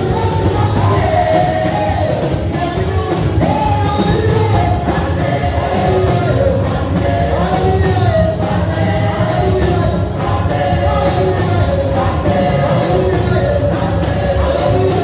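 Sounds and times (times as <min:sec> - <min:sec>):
bass and drums: 0:00.0 - 0:15.0
live worship music: 0:00.0 - 0:15.0
people singing: 0:00.0 - 0:15.0.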